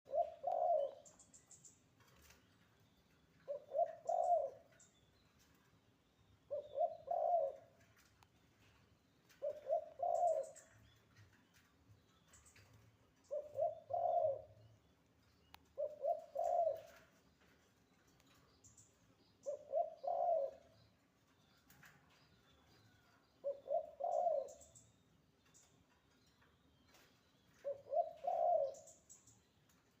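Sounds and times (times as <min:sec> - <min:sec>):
dove cooing: 0:00.1 - 0:01.6, 0:03.4 - 0:04.9, 0:06.5 - 0:08.1, 0:09.3 - 0:11.3, 0:12.5 - 0:14.8, 0:15.6 - 0:17.2, 0:19.4 - 0:20.9, 0:22.8 - 0:24.9, 0:26.9 - 0:29.2
small bird chirping: 0:00.1 - 0:05.6, 0:09.1 - 0:30.0.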